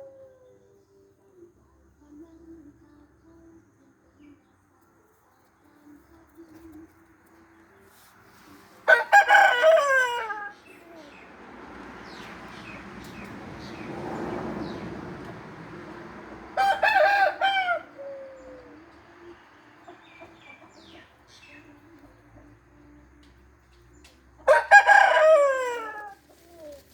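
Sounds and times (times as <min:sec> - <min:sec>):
rooster crowing: 0:08.9 - 0:11.2, 0:16.5 - 0:18.8, 0:24.4 - 0:26.2.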